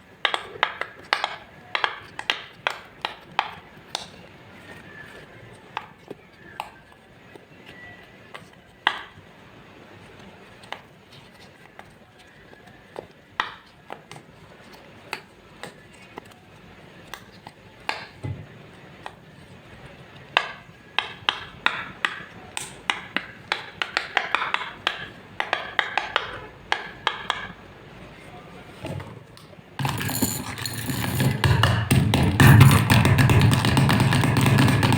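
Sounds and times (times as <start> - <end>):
utensil tapping a bowl: 20.4 - 27.6, 29.8 - 34.9.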